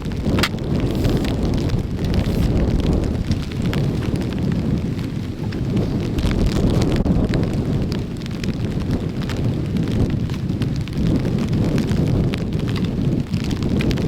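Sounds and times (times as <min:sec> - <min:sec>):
hard rain pattering: 0:00.0 - 0:14.0
wind buffeting microphone: 0:00.0 - 0:14.0.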